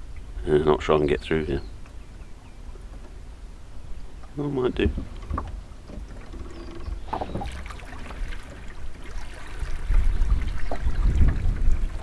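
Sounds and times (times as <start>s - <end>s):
water sloshing around a boat: 0.0s - 12.0s
knocks on wooden hull: 4.8s - 8.7s.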